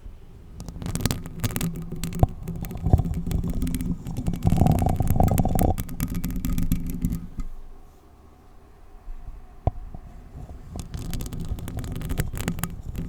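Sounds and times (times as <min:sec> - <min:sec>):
microphone rubbing rumble: 0:00.0 - 0:07.7, 0:09.7 - 0:13.0
nails scratching a paper cup: 0:00.5 - 0:07.6, 0:10.1 - 0:13.0.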